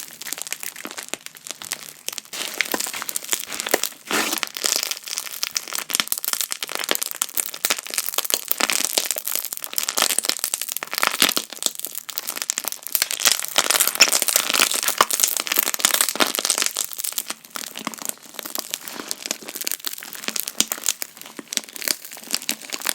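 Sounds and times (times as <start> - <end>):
slime air bubbles popping: 2.3 - 4.8.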